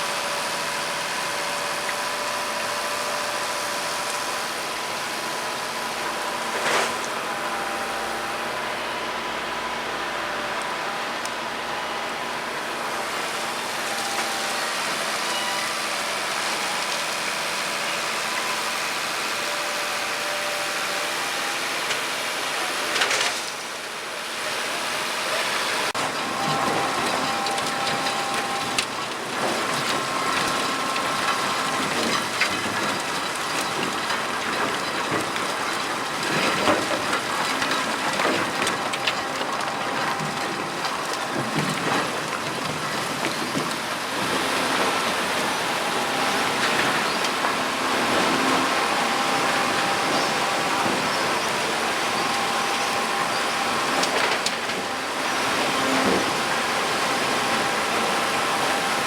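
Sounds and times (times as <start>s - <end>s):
industrial grinder running: 0.0s - 59.0s.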